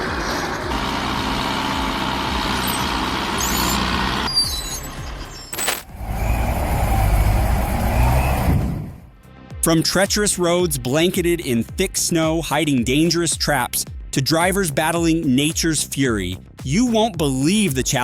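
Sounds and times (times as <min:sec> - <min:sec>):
heavy vehicle engine running: 0:00.0 - 0:04.3, 0:05.6 - 0:09.0
deep engine rumble: 0:05.8 - 0:09.0.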